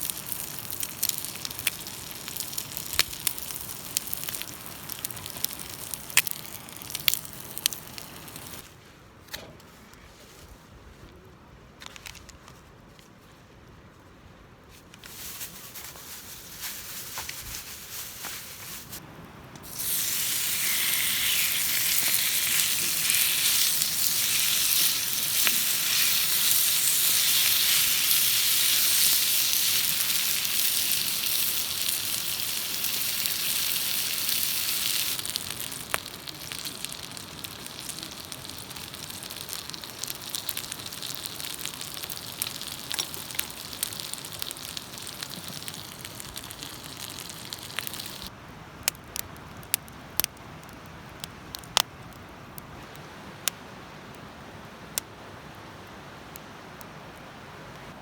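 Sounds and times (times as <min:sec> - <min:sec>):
food sizzling in a hot pan: 0:00.0 - 0:08.7, 0:19.6 - 0:48.3.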